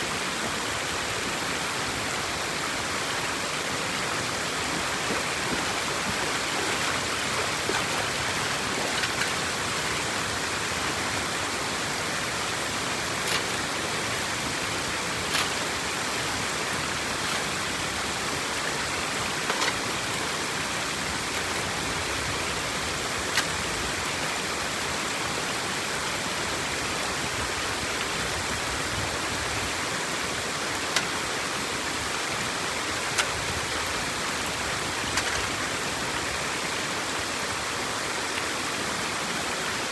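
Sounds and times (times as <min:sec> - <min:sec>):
water rushing through drain: 0:03.4 - 0:24.2.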